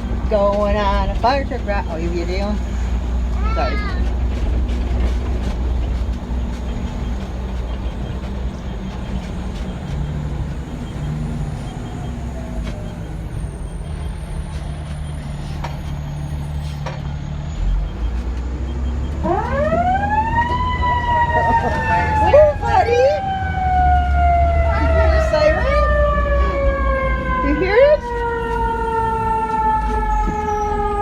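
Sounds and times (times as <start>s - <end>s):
fire truck engine drone: 0.0s - 31.0s
siren wailing: 19.1s - 31.0s.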